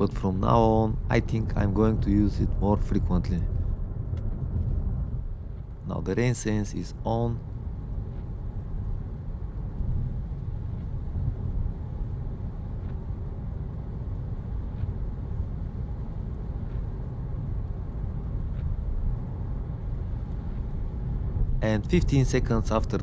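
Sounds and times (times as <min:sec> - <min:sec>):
low rumble inside car cabin: 0:00.0 - 0:23.0.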